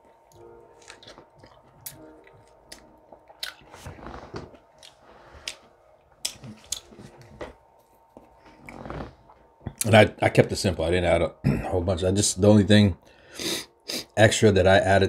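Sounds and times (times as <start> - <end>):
person chewing food: 0.0 - 9.1.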